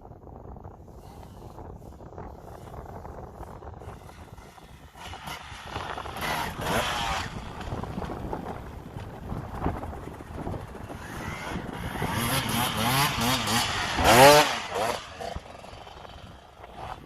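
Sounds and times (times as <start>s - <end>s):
dirt bike engine revving: 3.4s - 17.0s.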